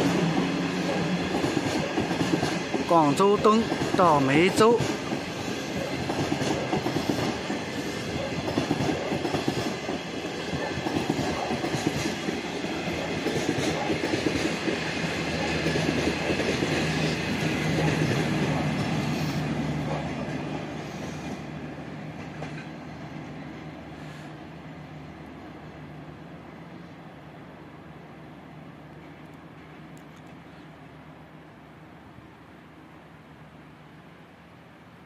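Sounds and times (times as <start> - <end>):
train low hum: 0.0 - 35.0
train wheels clattering: 3.6 - 20.4.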